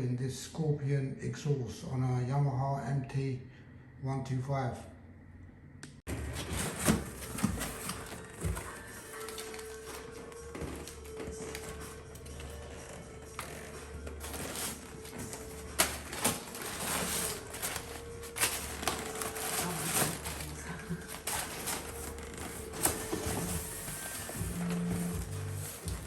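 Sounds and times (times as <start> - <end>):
background music: 6.1 - 26.0
packaging rustling: 6.1 - 26.0.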